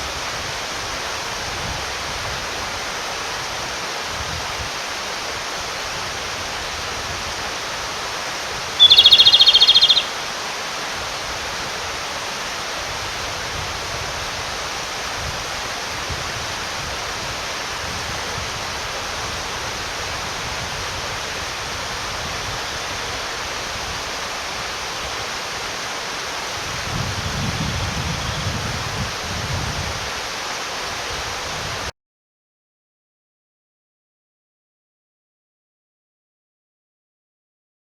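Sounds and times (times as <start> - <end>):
mountain stream rushing: 0.0 - 31.9
robin singing a trill: 8.8 - 10.4.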